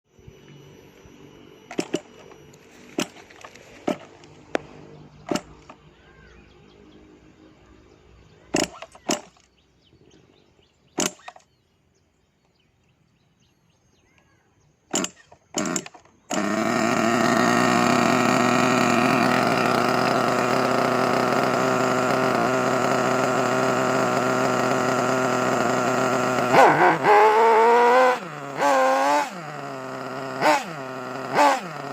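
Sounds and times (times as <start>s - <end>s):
model buggy engine running: 1.7s - 10.0s, 14.9s - 31.9s.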